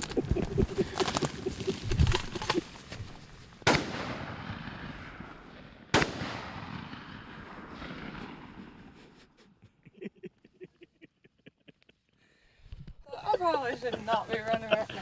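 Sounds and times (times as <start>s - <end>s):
shotgun shots with echo: 3.6s - 9.0s.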